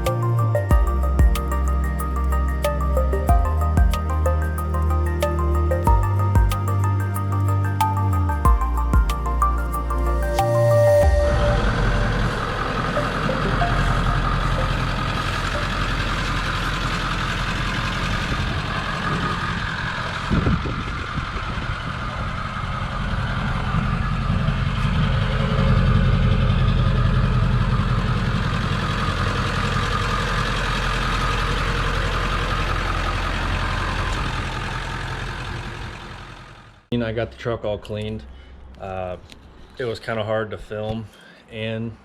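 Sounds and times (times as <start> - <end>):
pickup truck engine idling: 0.0 - 36.9
engine knock: 11.6 - 36.9.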